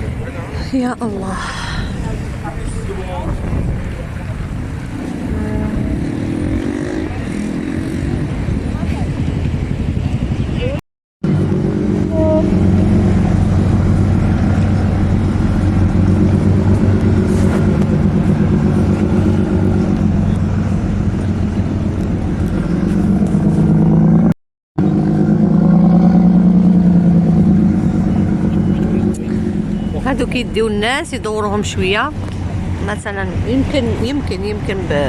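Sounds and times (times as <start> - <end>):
boat engine droning: 0.0 - 35.0
water noise: 0.0 - 35.0
wind: 0.0 - 35.0.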